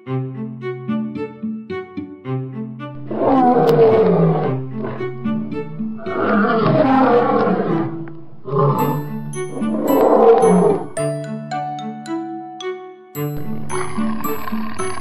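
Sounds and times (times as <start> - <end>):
string music: 0.0 - 15.0
lion roaring: 3.0 - 11.0.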